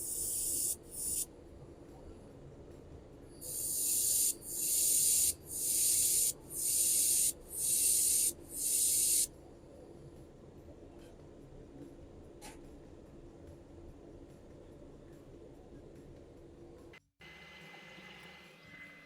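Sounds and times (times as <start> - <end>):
laser welder hissing pulses: 0.0 - 1.2, 3.4 - 9.3.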